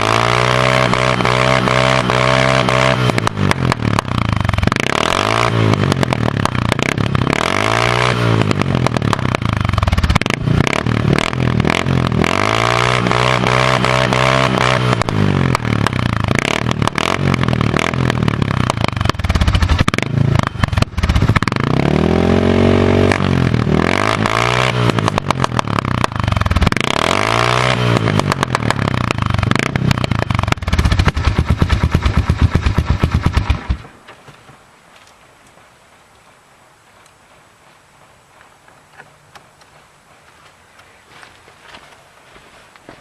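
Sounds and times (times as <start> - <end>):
four-wheeler engine revving: 0.0 - 33.8.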